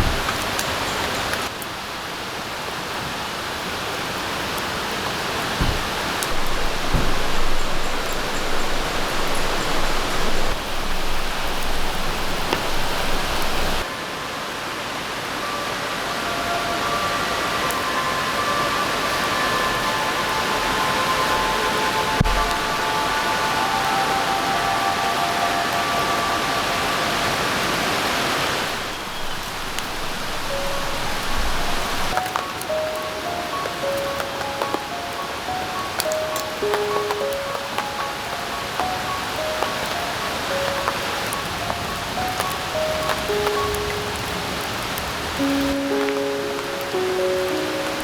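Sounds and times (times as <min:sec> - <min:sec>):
steady rain falling: 0:00.0 - 0:48.0
soft background music: 0:05.6 - 0:28.2, 0:28.8 - 0:48.0.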